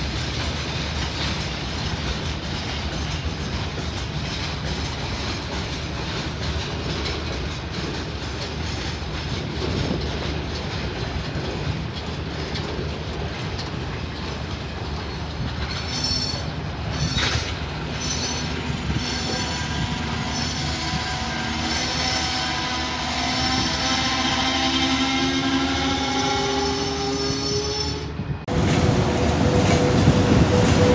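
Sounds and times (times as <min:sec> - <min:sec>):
train wheels rumbling on rail: 0:00.0 - 0:30.9
train wheels squealing: 0:13.6 - 0:28.3, 0:29.1 - 0:30.9.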